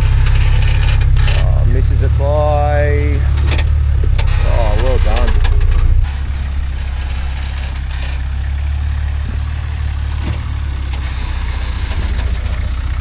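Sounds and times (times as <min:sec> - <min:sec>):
truck engine low rumble: 0:00.0 - 0:13.0.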